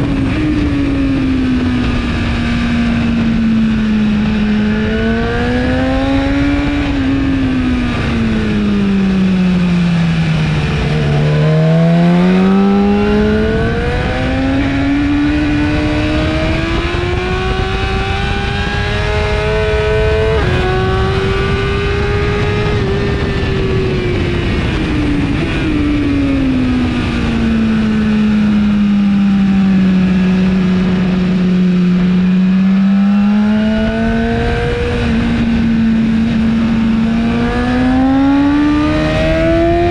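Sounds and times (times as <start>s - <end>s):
motorcycle engine accelerating: 0.0s - 39.9s
wind rush: 0.0s - 39.9s.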